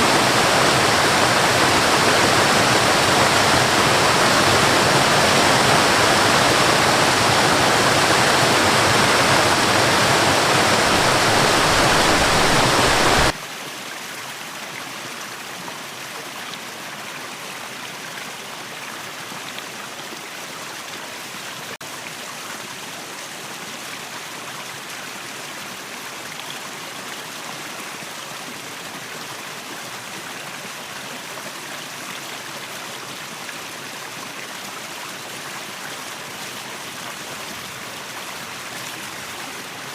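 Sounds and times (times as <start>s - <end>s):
thin flow of water: 0.0s - 13.4s
waterfall rushing water: 0.0s - 15.8s, 20.0s - 39.9s.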